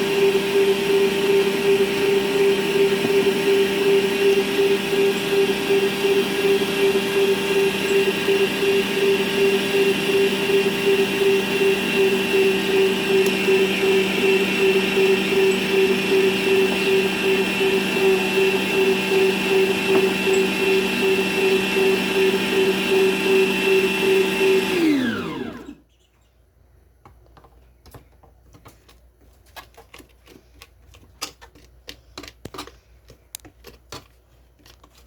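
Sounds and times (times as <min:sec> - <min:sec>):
stand mixer motor humming: 0:00.0 - 0:25.8
faint clicks and taps: 0:27.0 - 0:35.0.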